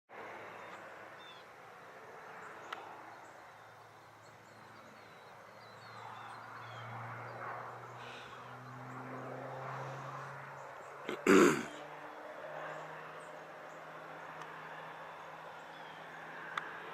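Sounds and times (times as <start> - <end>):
distant airplane drone: 0.2 - 16.9
birds chirping: 2.3 - 9.1.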